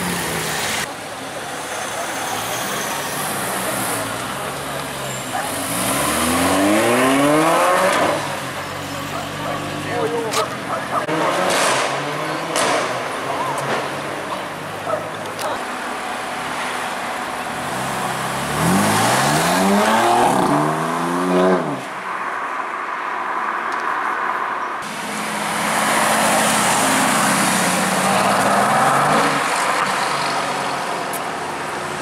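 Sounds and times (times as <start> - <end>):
sports car accelerating hard: 5.4 - 8.5, 17.6 - 21.9.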